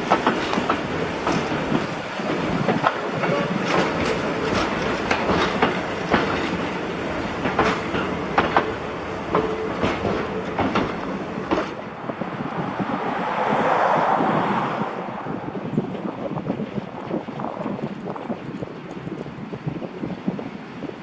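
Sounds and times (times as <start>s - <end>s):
wheels knocking over rail joints: 0.0s - 11.9s
train running gear rumble: 0.0s - 21.0s
wind noise rush: 0.0s - 21.0s.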